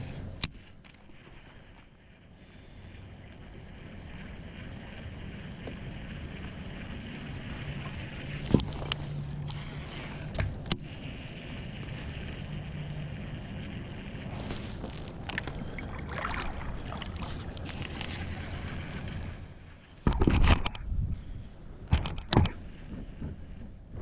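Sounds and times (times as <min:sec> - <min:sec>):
wind: 0:00.0 - 0:24.0
river water rushing: 0:14.3 - 0:19.8
sharp knocks and clicks: 0:20.0 - 0:20.8, 0:21.9 - 0:24.0.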